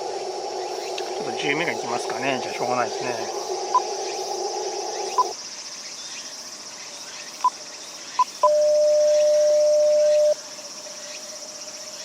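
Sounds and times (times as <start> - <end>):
radio receiver hiss: 0.0 - 5.4
crickets chirping: 0.0 - 12.0
short high beeps: 8.4 - 10.4
steady morse code tone: 8.4 - 10.4.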